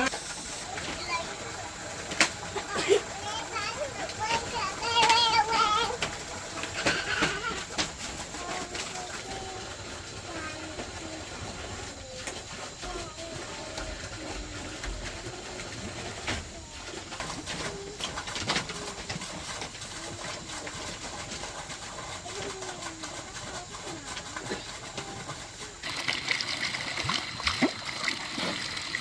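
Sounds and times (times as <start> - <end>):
water splashing: 0.0 - 29.0.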